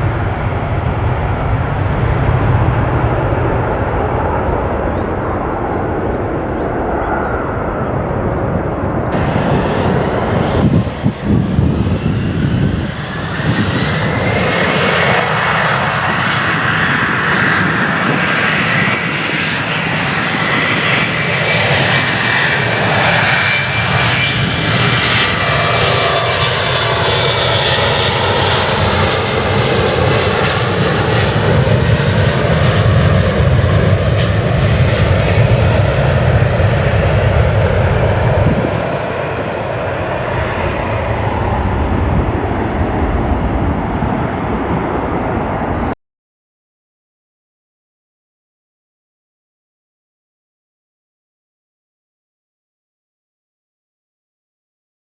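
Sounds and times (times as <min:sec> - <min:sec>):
high engine whine: 0:00.0 - 0:14.8, 0:36.4 - 0:46.0
jet engines roaring: 0:00.0 - 0:46.0.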